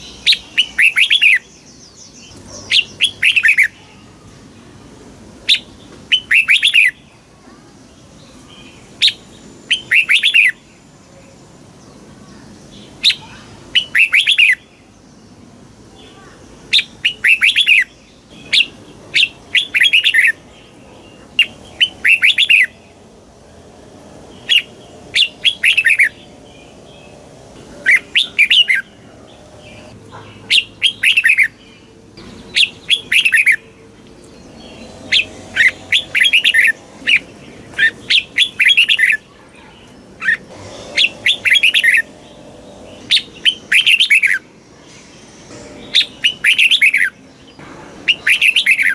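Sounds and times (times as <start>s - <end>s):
bird singing whistled notes: 0.0s - 1.8s, 5.5s - 7.0s, 9.0s - 10.7s, 13.0s - 14.7s, 16.7s - 20.4s, 21.4s - 22.8s, 24.4s - 27.2s, 27.8s - 29.0s, 29.7s - 39.2s, 40.2s - 44.5s, 45.2s - 47.5s, 48.1s - 48.9s
faint background hiss: 0.0s - 48.7s.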